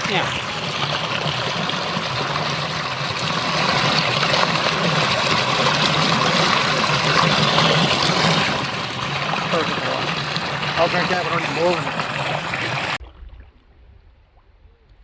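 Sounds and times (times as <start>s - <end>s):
water flowing over rocks: 0.0s - 13.0s.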